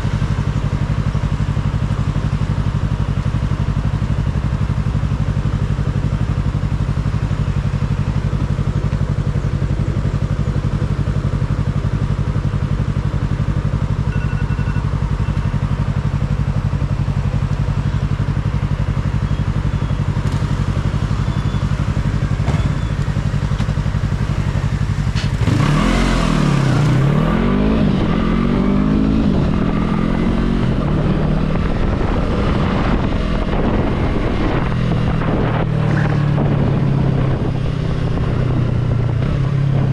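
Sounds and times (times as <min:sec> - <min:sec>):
motorcycle engine revving: 0:00.0 - 0:39.9
wind noise: 0:27.3 - 0:39.9.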